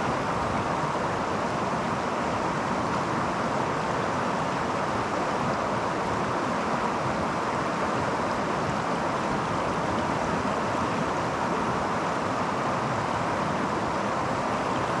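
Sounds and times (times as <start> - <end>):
creek water rushing over rocks: 0.0 - 15.0.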